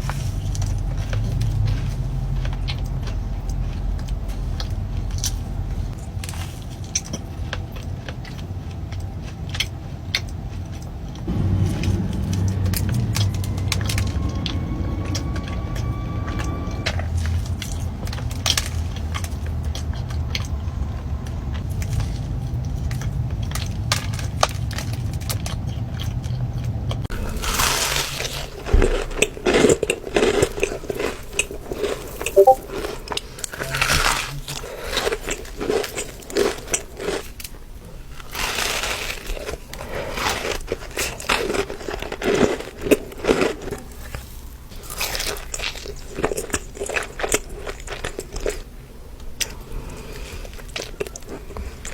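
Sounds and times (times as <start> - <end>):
steady low rumble: 0.0 - 6.4, 10.7 - 27.0
cookie crunching and chewing: 0.0 - 15.3, 16.9 - 51.9.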